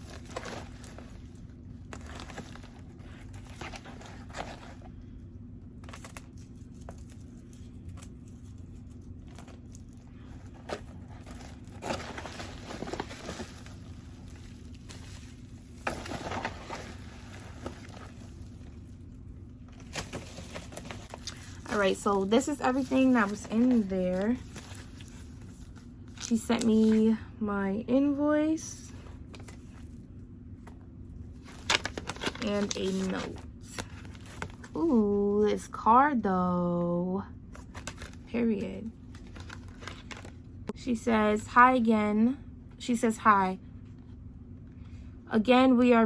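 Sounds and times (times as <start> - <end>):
paper and plastic crinkling: 0.0 - 5.0, 5.8 - 27.2, 31.3 - 34.9, 37.5 - 38.3, 39.0 - 40.4
faint low hum: 0.0 - 46.0.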